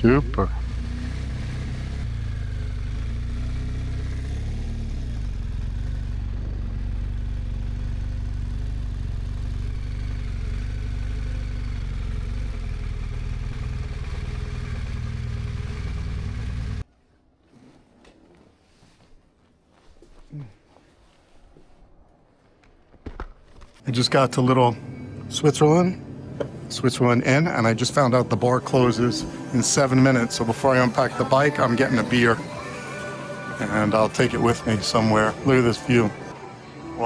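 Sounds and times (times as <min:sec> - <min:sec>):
motorcycle engine rumbling: 0:00.0 - 0:16.9.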